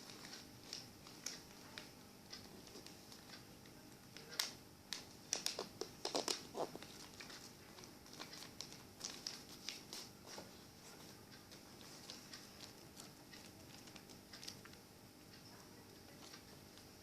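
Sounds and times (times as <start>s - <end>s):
paper crinkling: 4.2s - 14.8s.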